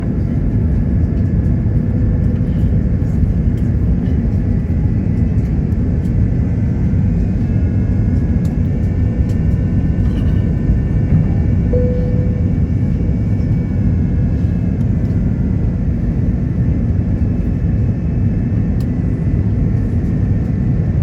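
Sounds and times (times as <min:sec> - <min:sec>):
airliner cabin rumble: 0:00.0 - 0:21.0
faint steady whines: 0:05.1 - 0:18.2.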